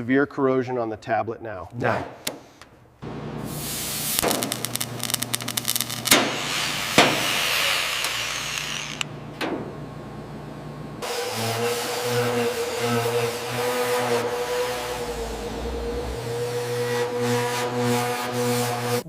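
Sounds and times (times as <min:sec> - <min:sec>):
power tool running: 0:03.0 - 0:09.4, 0:10.9 - 0:17.9.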